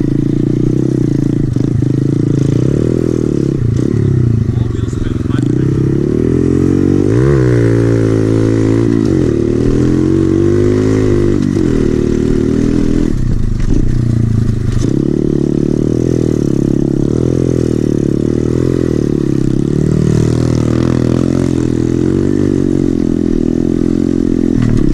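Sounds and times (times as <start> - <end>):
motorbike engine revving: 0.0 - 24.9.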